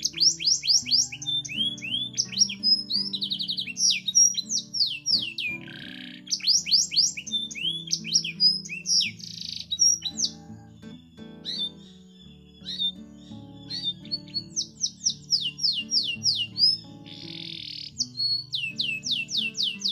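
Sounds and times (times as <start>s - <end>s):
canary singing: 0.0s - 19.9s
soft background music: 0.0s - 19.9s.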